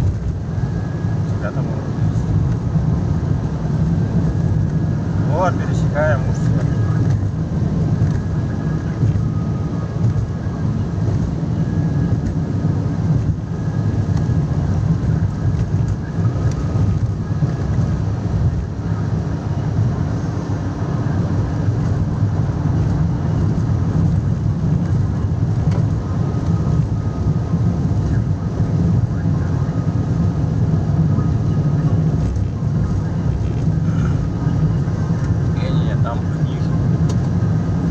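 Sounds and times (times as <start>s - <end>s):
vehicle engine and road rumble: 0.0s - 37.9s.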